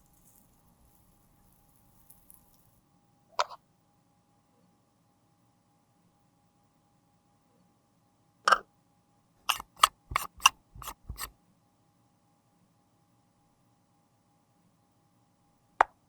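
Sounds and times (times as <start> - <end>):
makeup containers clicking: 9.5 - 11.3.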